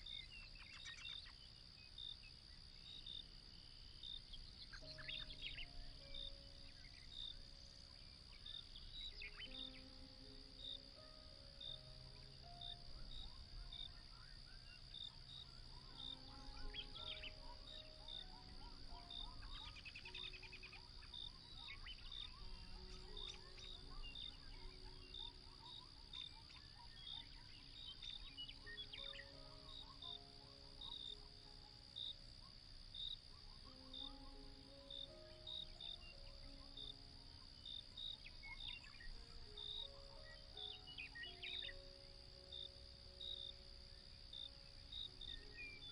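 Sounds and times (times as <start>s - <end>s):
crickets trilling and chirping: 0.0s - 45.9s
faint bird-like calls: 4.2s - 45.9s
soft slow melody: 4.3s - 45.9s.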